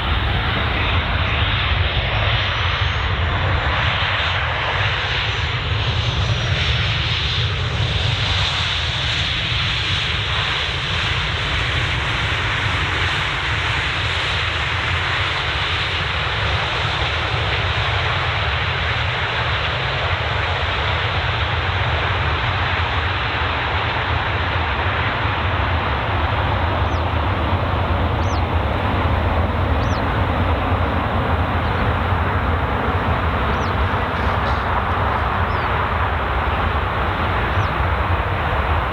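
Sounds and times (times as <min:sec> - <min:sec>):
jet engines rushing and whining: 0:00.0 - 0:02.5, 0:18.5 - 0:38.9.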